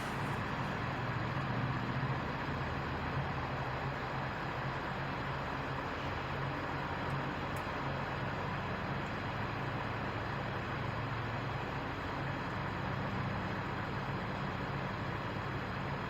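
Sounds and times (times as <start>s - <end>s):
truck engine idling: 0.0s - 7.3s.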